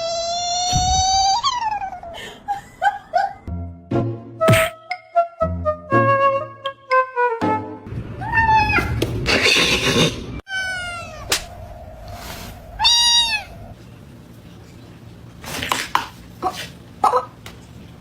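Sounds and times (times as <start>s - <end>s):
cat meowing: 12.8s - 13.7s.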